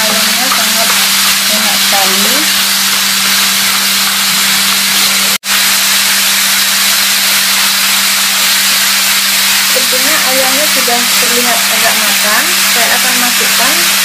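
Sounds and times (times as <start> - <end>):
chopsticks stirring: 0.0 - 3.5
chicken sizzling in a frying pan: 0.0 - 14.0.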